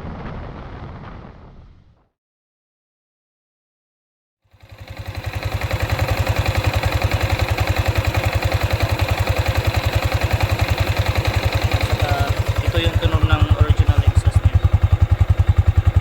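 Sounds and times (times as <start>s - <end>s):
motorcycle engine idling: 4.5s - 16.0s.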